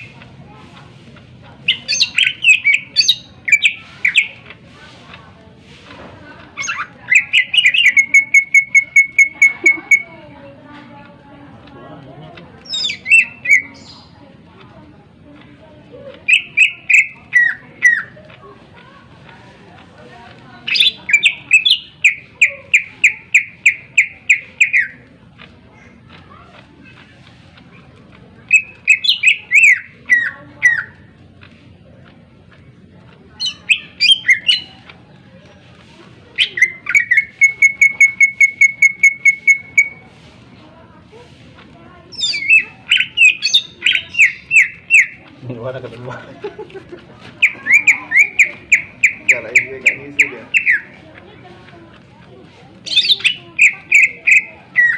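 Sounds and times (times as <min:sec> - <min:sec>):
bird whistled calls: 0:01.7 - 0:04.4, 0:06.6 - 0:10.1, 0:12.7 - 0:14.0, 0:16.3 - 0:18.1, 0:20.7 - 0:25.0, 0:28.5 - 0:31.0, 0:33.4 - 0:34.8, 0:36.4 - 0:40.1, 0:42.1 - 0:45.2, 0:47.4 - 0:51.0, 0:52.8 - 0:54.9.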